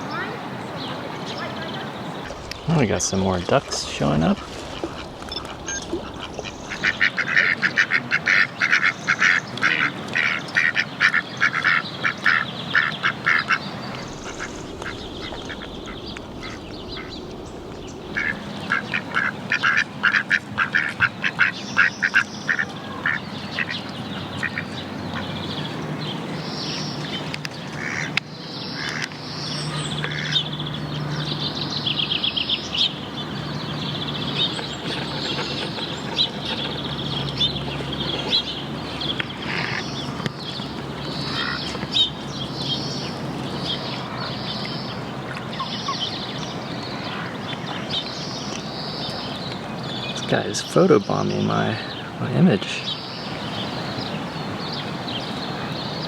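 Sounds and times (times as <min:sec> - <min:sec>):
ducks quacking: 0:02.2 - 0:25.7, 0:27.7 - 0:29.2, 0:29.8 - 0:30.5, 0:34.3 - 0:42.2
high bird chirps: 0:03.8 - 0:07.5.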